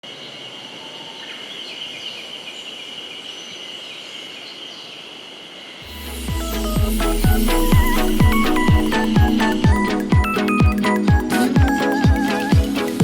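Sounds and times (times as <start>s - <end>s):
background music with a beat: 5.8s - 13.0s
steady high-pitched drone: 5.8s - 13.0s.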